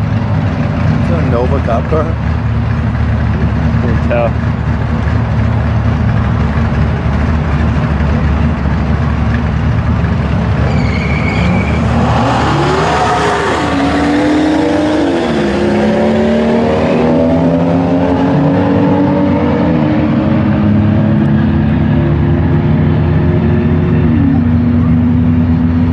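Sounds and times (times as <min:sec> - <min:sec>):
drag car engine accelerating: 0:00.0 - 0:25.9.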